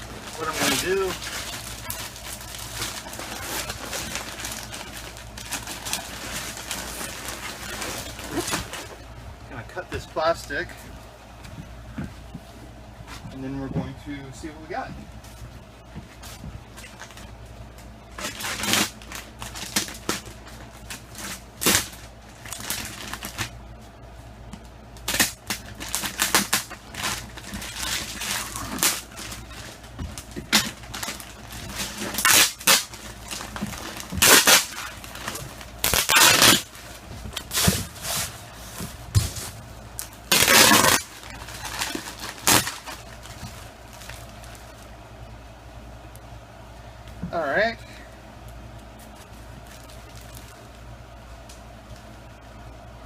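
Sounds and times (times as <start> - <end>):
plastic wrapping crinkling and ripping: 0.0 - 9.0, 16.2 - 23.6, 25.0 - 45.0, 48.8 - 50.9.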